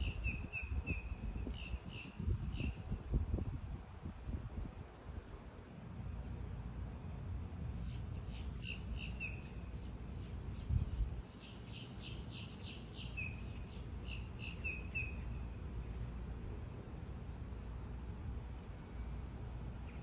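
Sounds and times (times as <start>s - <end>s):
small bird chirping: 0.0s - 2.8s, 7.8s - 15.4s.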